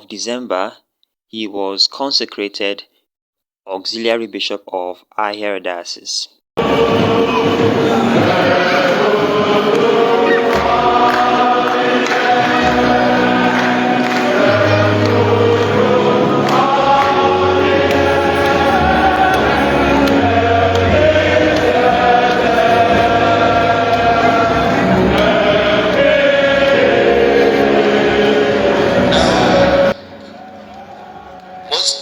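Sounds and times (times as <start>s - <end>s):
choir singing a hymn: 6.6s - 31.9s
instrumental accompaniment: 6.6s - 32.0s.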